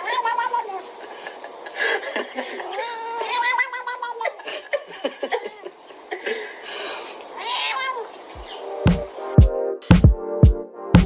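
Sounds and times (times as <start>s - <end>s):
cat meowing: 7.4s - 8.1s.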